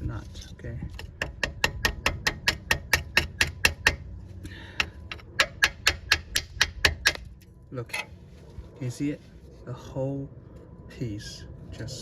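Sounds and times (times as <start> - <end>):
tool tapping rust off metal: 0.9 - 4.1, 4.7 - 7.4.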